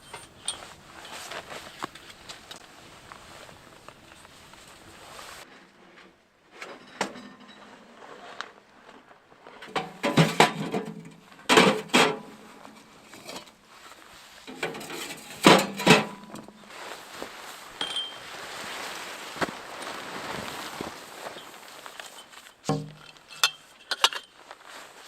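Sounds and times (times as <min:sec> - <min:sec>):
metal cookware clinking: 0:14.5 - 0:16.4, 0:17.8 - 0:18.2, 0:22.7 - 0:24.3.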